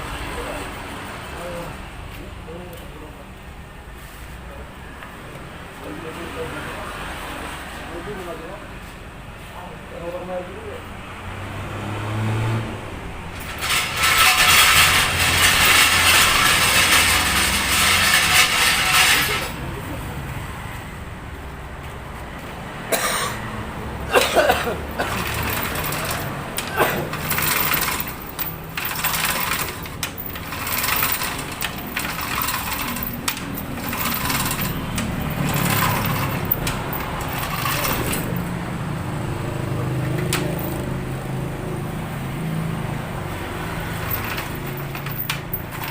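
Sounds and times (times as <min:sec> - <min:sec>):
loud rapid mechanical rattle: 0:13.3 - 0:19.6, 0:24.5 - 0:38.5, 0:40.1 - 0:40.9, 0:43.8 - 0:45.9
metal clanks and knocks: 0:13.4 - 0:19.6, 0:24.2 - 0:38.5, 0:40.1 - 0:40.9, 0:43.8 - 0:45.9.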